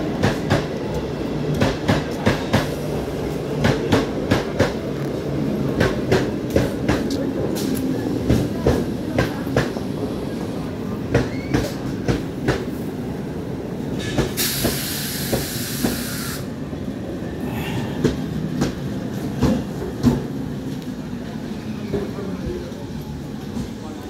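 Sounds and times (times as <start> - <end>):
train rumbling past: 0.0 - 24.0
loud hiss: 14.0 - 16.6.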